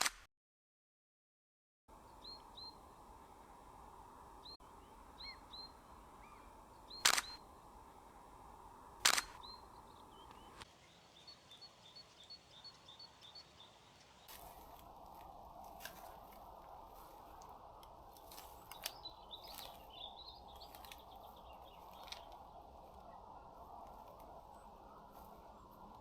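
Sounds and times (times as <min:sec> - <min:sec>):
small birds chirping: 0:01.9 - 0:26.0
camera shutter clicks: 0:07.0 - 0:07.4, 0:09.0 - 0:09.4.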